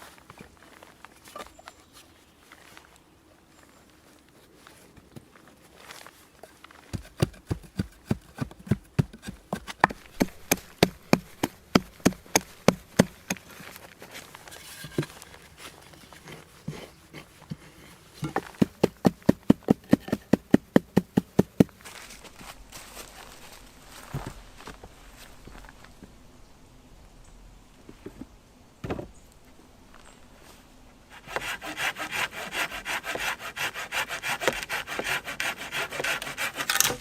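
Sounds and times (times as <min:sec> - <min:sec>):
hand tool striking hard: 0:07.0 - 0:13.5, 0:17.5 - 0:21.7, 0:32.9 - 0:37.0.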